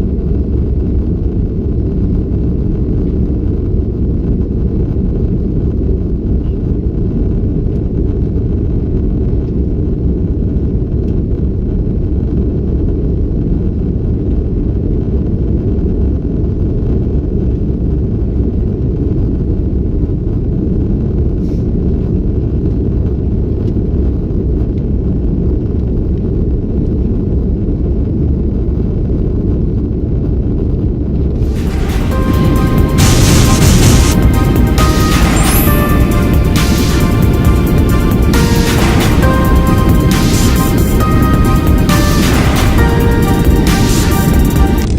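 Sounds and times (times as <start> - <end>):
airplane cabin rumble: 0.0 - 44.9
jet engines and airflow: 31.3 - 44.9.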